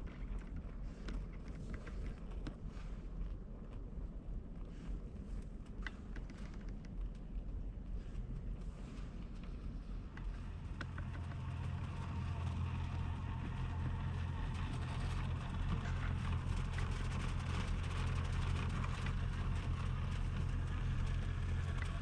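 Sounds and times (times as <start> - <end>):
truck engine running: 10.3 - 22.0.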